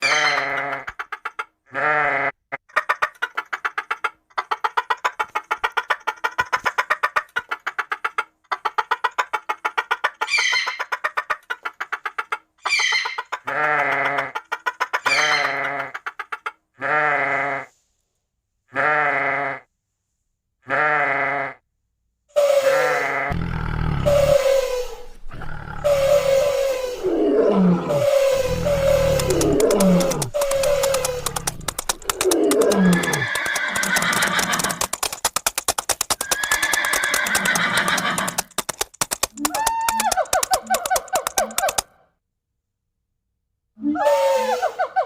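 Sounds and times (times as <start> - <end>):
animals bleating: 1.7 - 2.4, 18.7 - 19.6.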